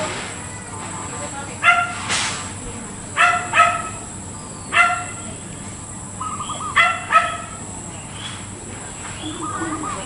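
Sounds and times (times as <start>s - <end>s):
dog barking: 1.6s - 2.0s, 3.2s - 4.0s, 4.7s - 5.2s, 6.8s - 7.6s
dove cooing: 6.2s - 7.6s, 9.2s - 10.0s.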